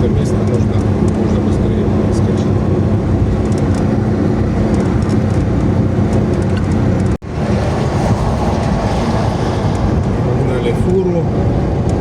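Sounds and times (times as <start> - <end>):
car engine hum: 0.0 - 12.0
tyre and road noise: 0.0 - 12.0.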